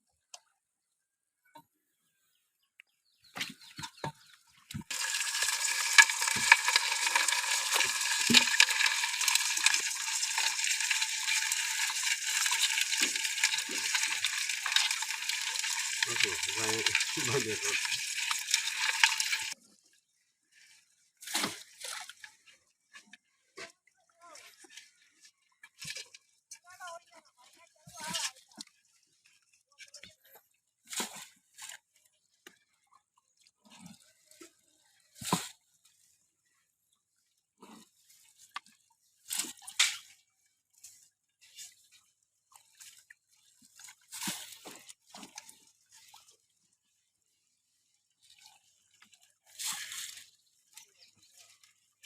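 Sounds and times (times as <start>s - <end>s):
water drips: 3.7s - 19.6s
water splash: 4.7s - 19.6s, 21.2s - 22.2s
water streaming in a hissing rush: 4.9s - 19.6s.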